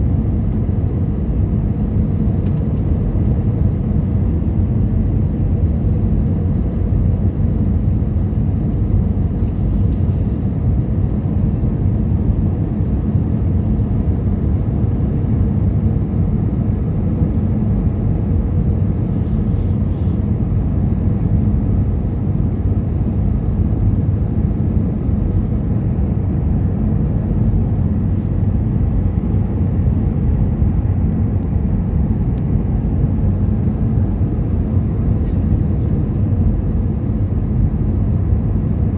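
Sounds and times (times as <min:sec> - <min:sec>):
airplane cabin rumble: 0:00.0 - 0:38.9
faint hum: 0:12.3 - 0:38.9.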